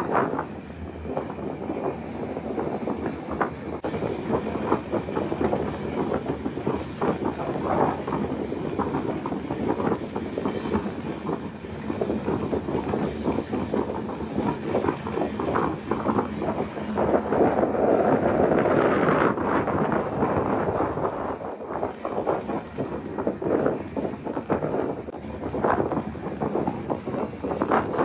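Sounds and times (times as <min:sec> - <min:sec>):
steel wheels clattering on rails: 0:00.0 - 0:28.0.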